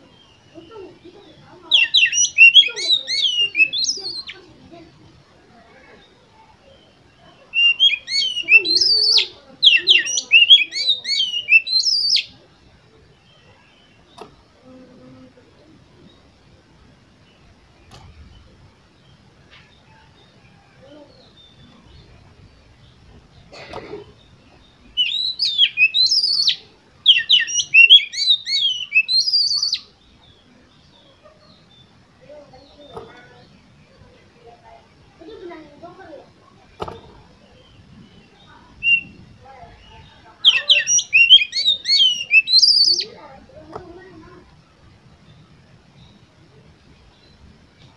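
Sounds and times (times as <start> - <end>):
magpie-robin singing: 0.0 - 47.9
bird singing whistled notes: 1.6 - 4.5, 6.7 - 12.4, 24.2 - 31.9, 36.8 - 43.3.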